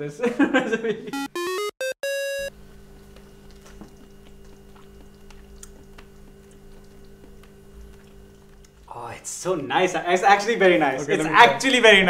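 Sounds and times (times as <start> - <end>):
person chewing food: 2.8 - 8.9
wet mouth clicks: 3.5 - 8.9.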